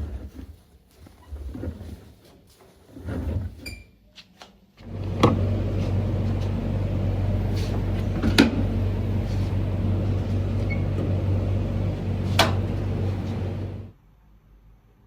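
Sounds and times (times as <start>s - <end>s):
kitchen appliance humming: 4.8s - 13.9s.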